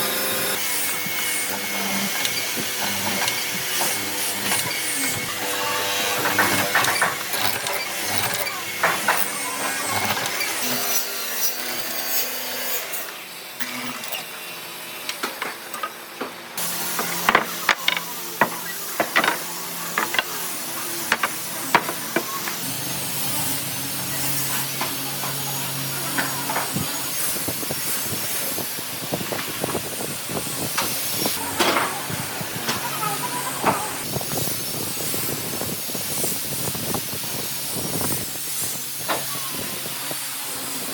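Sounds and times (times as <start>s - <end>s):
tools and wood knocking: 1.1s - 10.5s, 17.0s - 20.4s, 21.1s - 22.3s.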